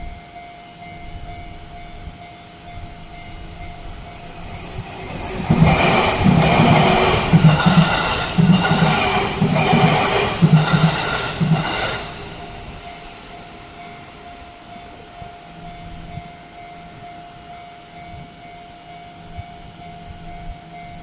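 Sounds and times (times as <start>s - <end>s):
faint steady tone: 0.0s - 6.4s, 11.6s - 21.0s
train wheels clacking over rail joints: 3.6s - 13.6s.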